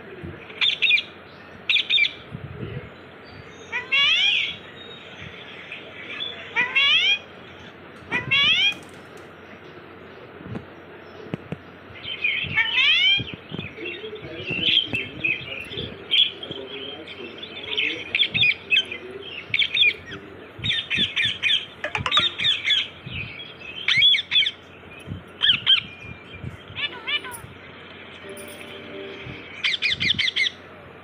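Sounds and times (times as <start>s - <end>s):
parrot squawking and chirping: 3.6s - 4.6s, 6.2s - 8.7s, 20.8s - 23.0s, 26.8s - 27.5s.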